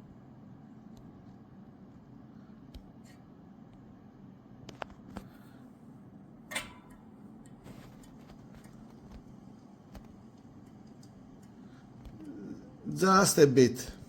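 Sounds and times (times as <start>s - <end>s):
low steady hum: 0.0s - 14.0s
metallic clink: 6.5s - 7.1s
light clicks and taps of tools: 6.5s - 12.2s.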